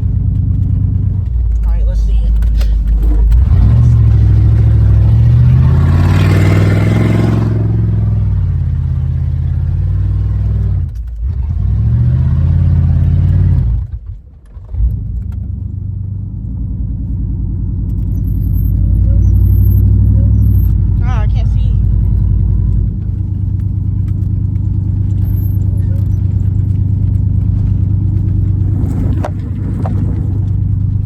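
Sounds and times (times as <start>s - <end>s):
truck engine revving without exhaust: 2.6s - 14.0s, 21.8s - 31.0s.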